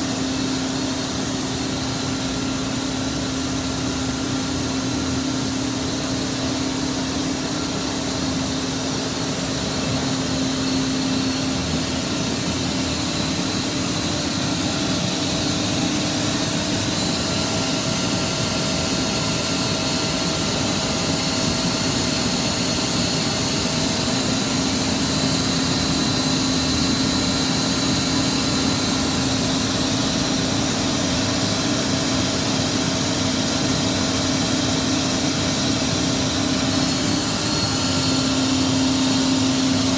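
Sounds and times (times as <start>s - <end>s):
boiler burner and blower rushing: 0.0s - 39.9s
steady hum: 0.0s - 39.9s.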